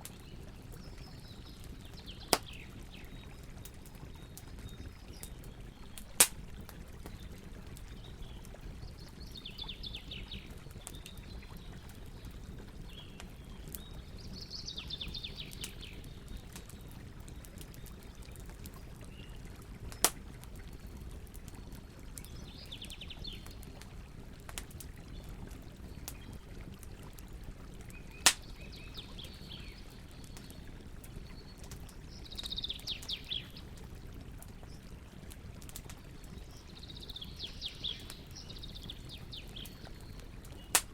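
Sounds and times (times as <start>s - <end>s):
campfire crackling: 0.0s - 40.9s
birds chirping: 7.0s - 16.8s, 32.1s - 33.6s, 36.3s - 40.9s.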